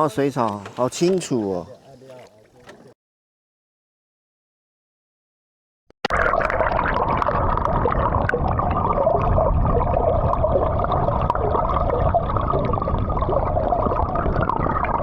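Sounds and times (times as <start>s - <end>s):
water gurgling around boat: 0.1s - 3.0s, 6.0s - 15.0s
wind rumble on microphone: 7.4s - 15.0s.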